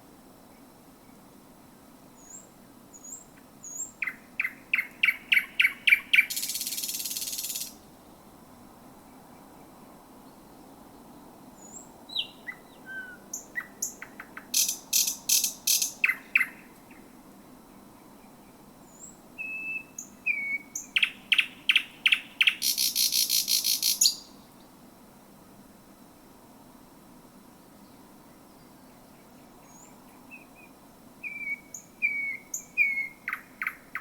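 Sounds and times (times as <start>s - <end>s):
bird singing whistles and clicks: 3.8s - 7.7s.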